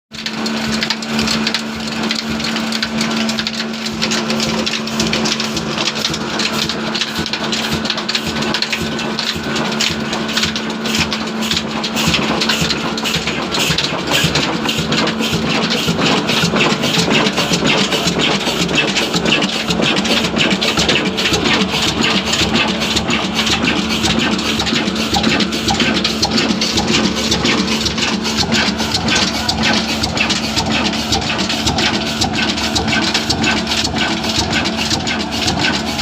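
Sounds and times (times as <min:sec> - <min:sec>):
diesel engine clattering: 0:00.1 - 0:36.0.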